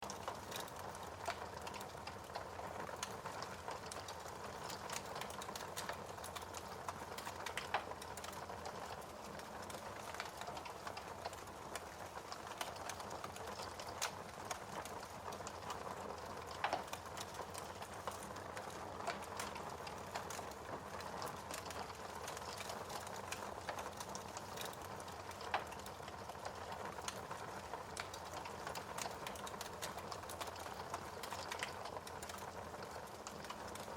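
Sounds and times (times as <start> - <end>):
wood fire crackling and popping: 0.0 - 33.9.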